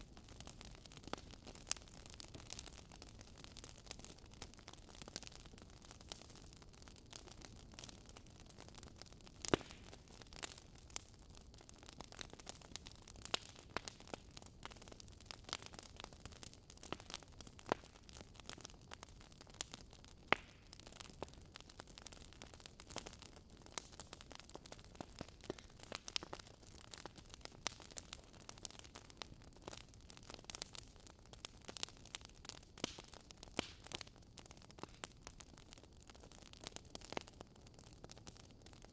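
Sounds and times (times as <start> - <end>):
wood fire crackling and popping: 0.0 - 38.9
fire soft hiss: 7.1 - 11.0, 11.6 - 35.5.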